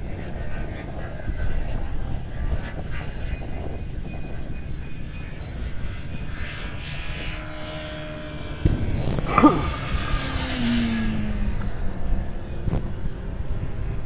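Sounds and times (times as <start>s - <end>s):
motorcycle engine accelerating: 5.7s - 14.0s.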